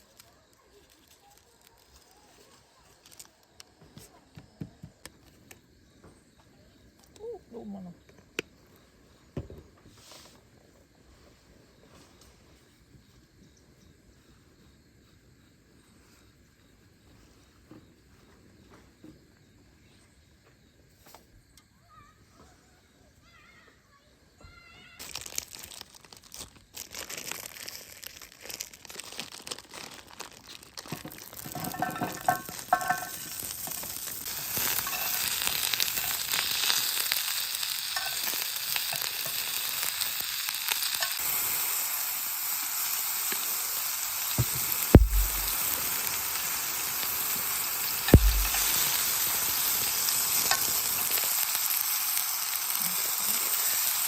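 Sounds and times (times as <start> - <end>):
food sizzling in a pan: 29.4 - 54.0
sharp knocks: 44.4 - 45.6, 48.2 - 48.7.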